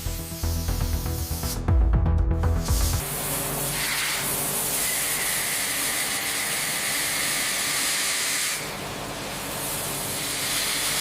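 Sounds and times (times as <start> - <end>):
steady hiss: 0.0 - 1.7.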